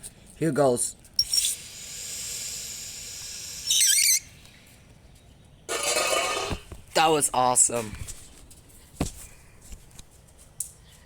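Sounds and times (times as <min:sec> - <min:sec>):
pool machine hissing: 0:01.2 - 0:04.4
short loud squeal: 0:01.2 - 0:04.4.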